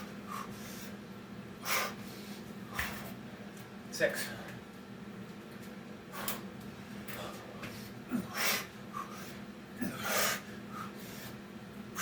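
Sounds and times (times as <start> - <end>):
man breathing hard: 0.2 - 1.0, 1.6 - 3.0, 6.1 - 12.0.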